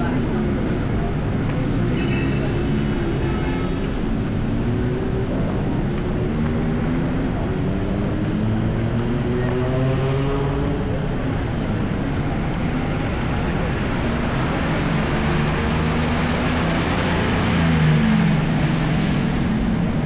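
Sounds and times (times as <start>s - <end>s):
vehicle engines passing: 0.0s - 20.0s.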